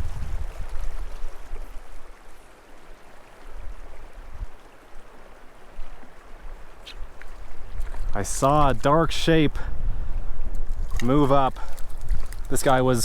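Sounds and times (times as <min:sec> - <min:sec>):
wind buffeting microphone: 0:00.0 - 0:02.2, 0:05.8 - 0:13.0
creek babbling over rocks: 0:00.0 - 0:09.5, 0:11.0 - 0:13.0.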